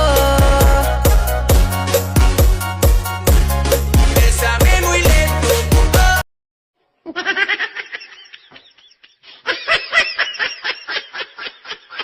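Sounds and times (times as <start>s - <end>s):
background music: 0.0s - 6.2s
person laughing: 7.0s - 12.0s.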